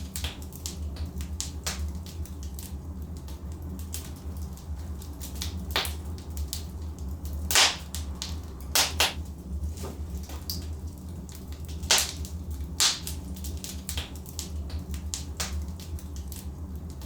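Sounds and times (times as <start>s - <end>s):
fire popping and snapping: 0.0s - 17.0s
fire rumbling: 0.0s - 17.0s
logs crackling: 11.7s - 14.4s.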